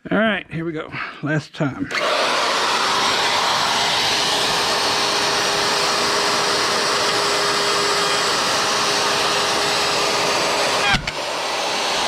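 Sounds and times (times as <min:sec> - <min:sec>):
electric wood router running: 0:01.9 - 0:12.0.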